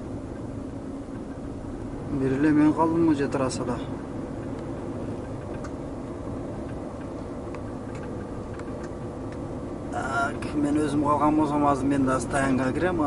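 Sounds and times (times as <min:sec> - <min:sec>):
diesel engine rumbling: 0:00.0 - 0:13.0
faint light ticks: 0:04.4 - 0:05.8, 0:06.6 - 0:09.4.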